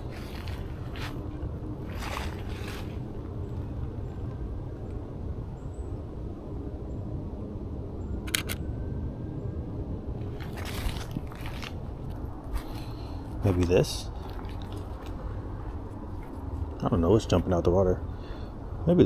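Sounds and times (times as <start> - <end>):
soft rustling swishes: 0.0 - 3.2
steady low rumble: 0.0 - 19.0.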